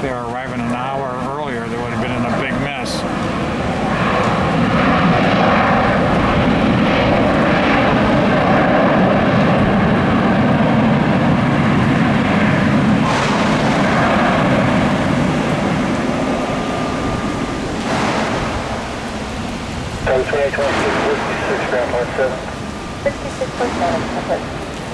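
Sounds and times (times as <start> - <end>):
jet engines running loud: 0.0 - 24.9.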